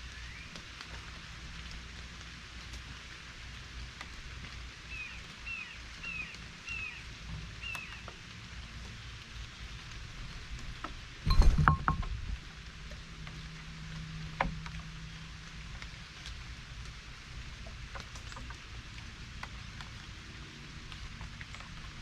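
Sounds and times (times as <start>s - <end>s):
rain pattering: 0.0s - 22.0s
bird chirping: 4.9s - 7.0s
loud knock: 11.3s - 12.1s.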